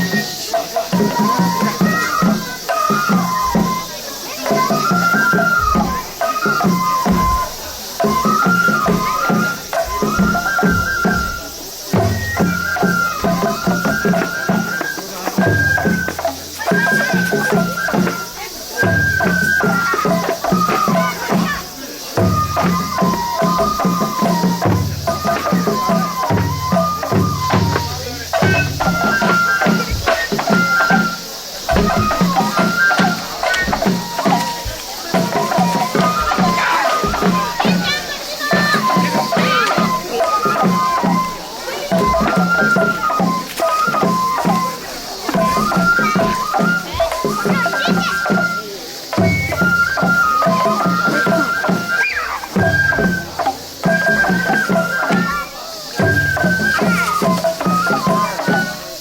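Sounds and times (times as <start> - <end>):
high bamboo flute melody: 0.0 - 59.0
sharp percussion strikes: 0.0 - 59.0
steady drumming: 0.0 - 59.0.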